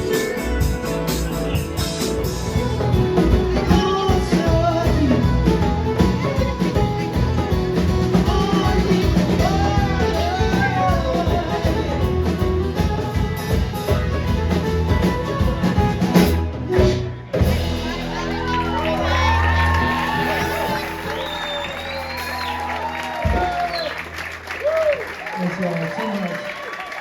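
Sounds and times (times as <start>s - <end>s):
drum kit: 0.0s - 24.9s
live band playing: 0.0s - 27.0s
person singing: 3.2s - 12.5s.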